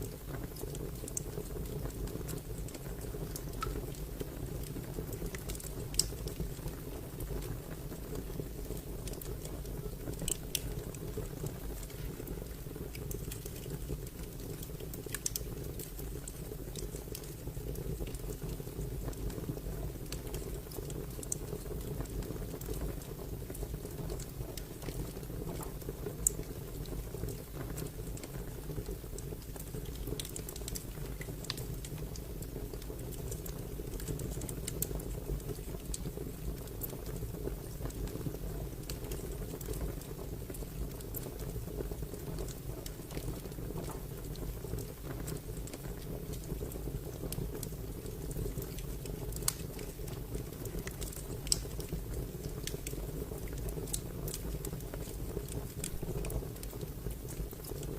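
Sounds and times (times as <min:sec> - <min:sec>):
wood fire crackling: 0:00.0 - 0:57.9.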